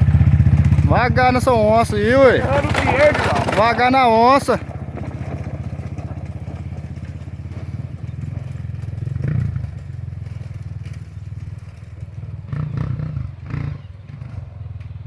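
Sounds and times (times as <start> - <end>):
motorcycle engine running: 0.0 - 15.0
thumps and rattles: 2.0 - 9.1.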